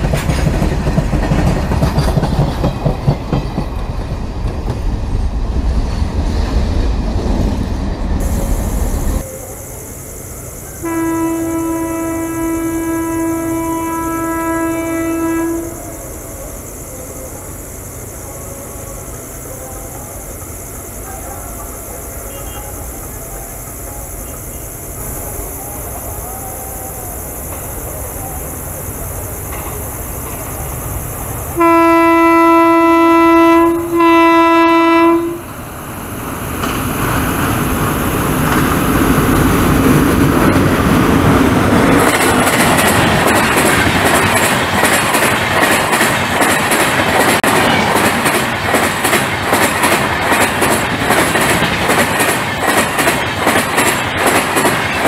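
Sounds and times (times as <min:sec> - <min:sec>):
wheels clacking over rail joints: 0:00.0 - 0:08.3, 0:29.4 - 0:31.6, 0:36.3 - 0:55.0
train coaches rushing past: 0:00.0 - 0:55.0
locomotive horn blasts: 0:10.8 - 0:15.9, 0:31.6 - 0:35.5.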